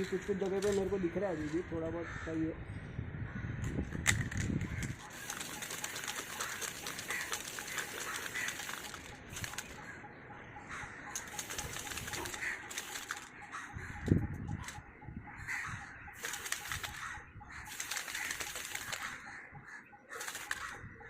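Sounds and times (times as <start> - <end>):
spray paint can hissing: 5.0 - 9.8, 11.2 - 13.3, 16.2 - 19.2, 20.2 - 20.8.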